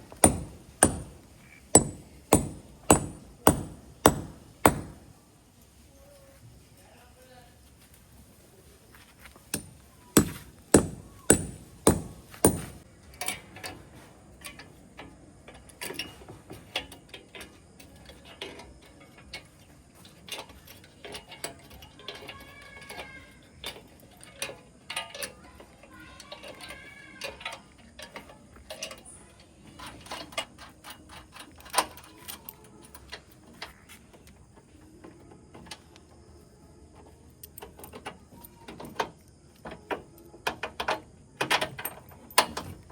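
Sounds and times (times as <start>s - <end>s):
hard tool knocks: 0.1s - 5.1s, 9.6s - 12.8s.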